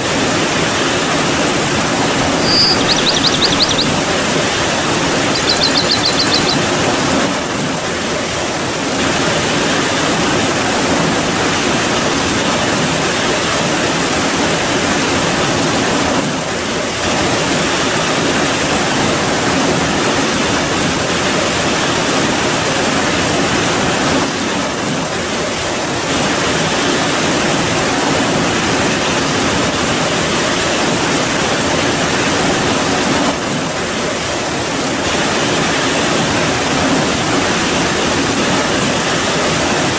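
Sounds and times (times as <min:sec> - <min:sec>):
brief high trill: 0:02.2 - 0:03.8.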